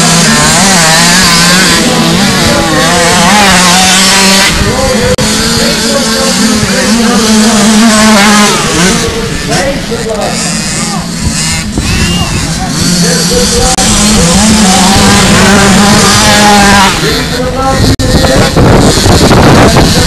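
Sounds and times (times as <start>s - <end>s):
motocross bikes revving: 0.0s - 20.0s.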